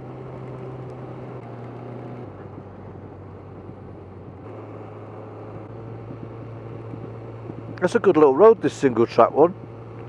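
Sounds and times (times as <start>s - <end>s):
motorcycle engine running: 0.0s - 10.0s
wind noise: 2.3s - 4.5s, 5.5s - 8.2s.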